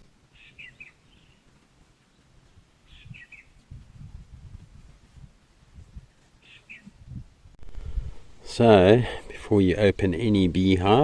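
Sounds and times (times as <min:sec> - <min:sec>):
faint bird chirping: 0:00.3 - 0:04.1, 0:06.0 - 0:07.2
low rumbling noise: 0:07.2 - 0:11.0.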